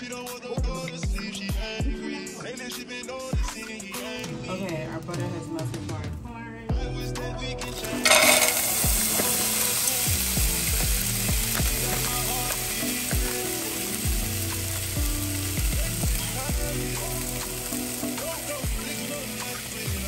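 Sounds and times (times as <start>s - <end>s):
butter sizzling: 7.6s - 20.0s
corn kernels clattering into pan: 7.7s - 20.0s.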